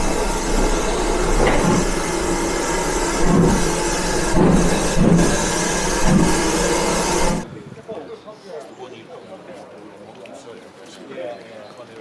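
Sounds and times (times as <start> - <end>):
train rumble and hiss: 0.0 - 7.7.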